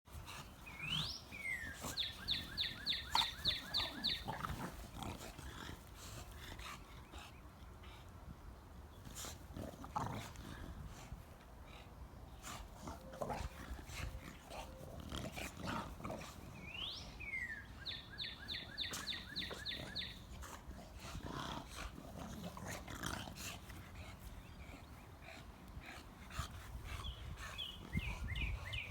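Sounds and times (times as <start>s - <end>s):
bird singing: 0.6s - 4.6s, 16.6s - 20.2s.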